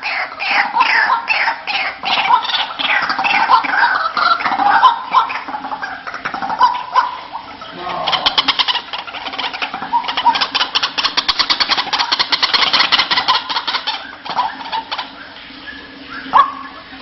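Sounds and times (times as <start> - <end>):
bird calling harsh pulses: 0.0 - 17.0.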